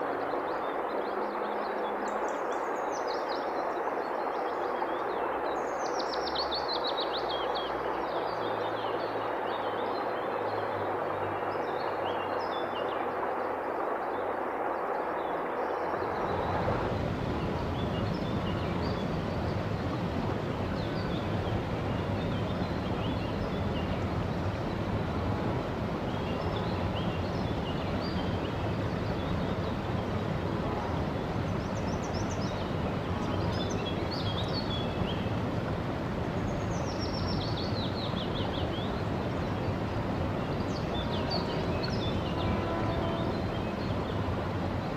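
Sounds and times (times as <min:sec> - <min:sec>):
forest river flowing: 0:00.0 - 0:44.9
songbirds chirping: 0:15.2 - 0:44.9.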